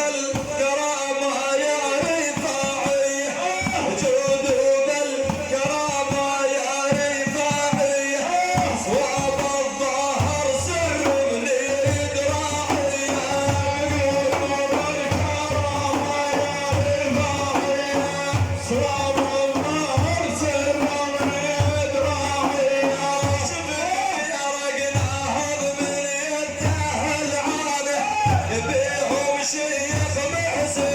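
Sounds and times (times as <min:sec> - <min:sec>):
low drum beat: 0:01.9 - 0:24.0, 0:24.9 - 0:30.9.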